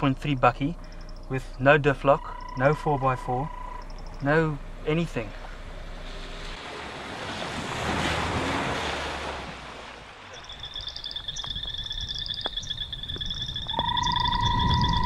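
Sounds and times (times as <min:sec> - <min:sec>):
frogs trilling and chirping: 0:00.0 - 0:04.6, 0:10.3 - 0:15.0
vehicle splashing through water: 0:03.0 - 0:11.5.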